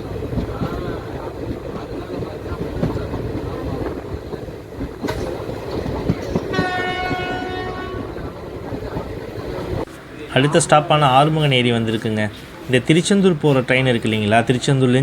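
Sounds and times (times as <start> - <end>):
train wheels clattering on rails: 0.0 - 15.0
train horn blast: 6.5 - 8.5.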